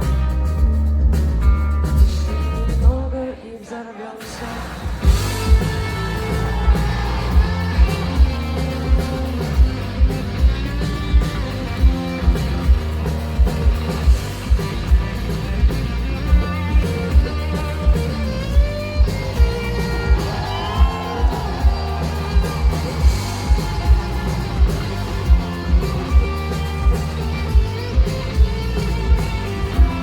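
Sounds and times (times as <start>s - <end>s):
guitar lines: 5.0s - 30.0s
kick drum beat: 6.4s - 9.0s, 20.1s - 26.3s.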